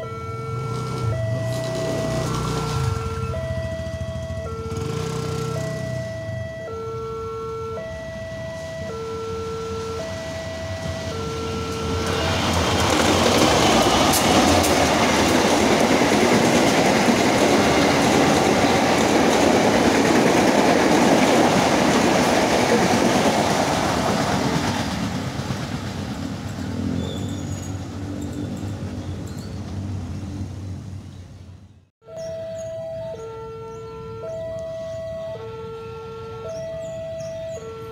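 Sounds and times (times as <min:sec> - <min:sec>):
train passing on rails: 0:00.5 - 0:06.5, 0:07.8 - 0:31.7.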